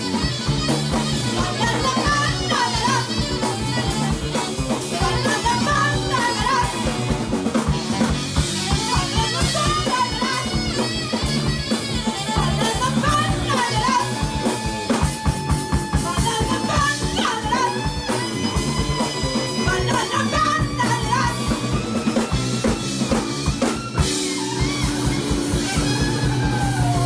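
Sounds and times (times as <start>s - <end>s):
bass guitar: 0.0s - 27.0s
drum kit: 0.0s - 27.0s
lead melody line: 0.0s - 27.0s
rock band playing: 0.0s - 27.0s.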